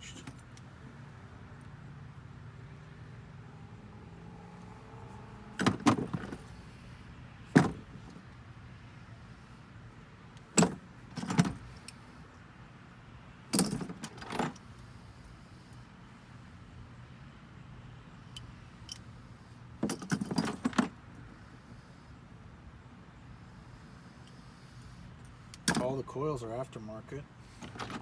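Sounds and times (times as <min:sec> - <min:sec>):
metallic tool clinks: 0:18.3 - 0:19.1, 0:25.6 - 0:25.9.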